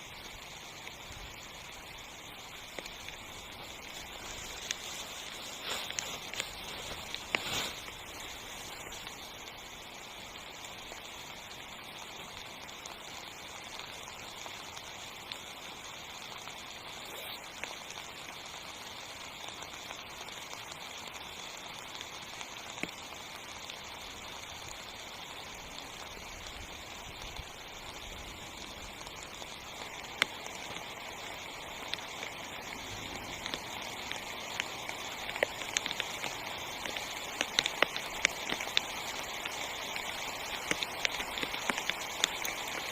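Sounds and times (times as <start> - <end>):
rain falling on a tent: 0.0 - 42.9
sharp raindrop impacts: 0.1 - 10.1, 19.1 - 42.9.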